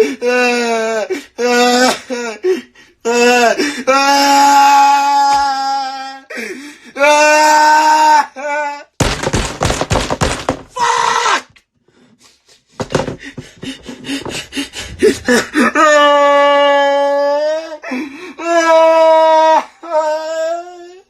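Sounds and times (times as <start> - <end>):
thuds and knocks: 9.0 - 10.9, 12.8 - 15.2
man wailing: 10.8 - 11.5, 15.0 - 17.8.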